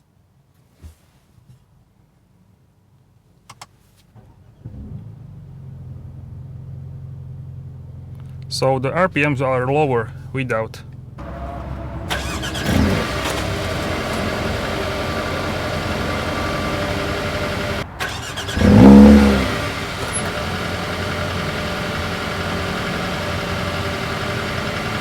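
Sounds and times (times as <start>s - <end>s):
car engine idling: 5.2s - 25.0s
engine start-up flare: 11.2s - 25.0s.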